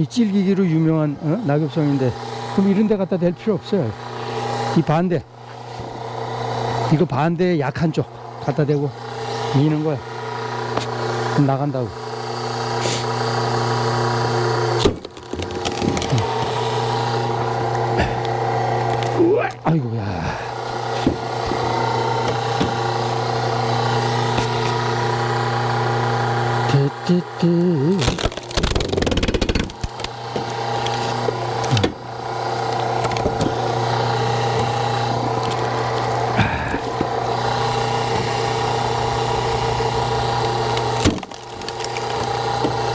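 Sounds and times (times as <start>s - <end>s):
log splitter engine running: 0.0s - 42.9s
wood cracking: 14.7s - 19.7s, 20.6s - 25.7s, 28.0s - 42.9s
wood creaking: 14.8s - 19.6s, 20.5s - 25.4s, 28.0s - 42.9s.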